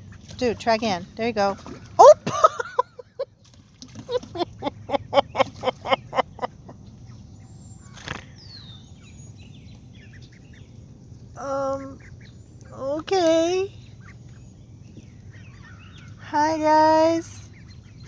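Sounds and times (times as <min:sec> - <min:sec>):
duck quacking: 0:04.2 - 0:06.6.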